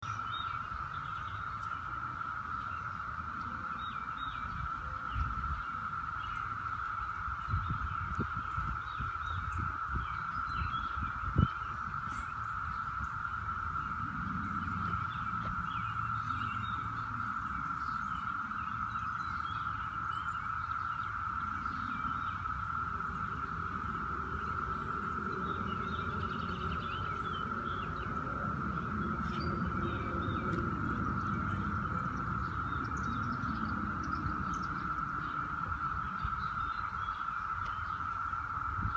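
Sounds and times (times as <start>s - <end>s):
steady drone: 21.4s - 38.9s
low rumble: 22.8s - 38.9s.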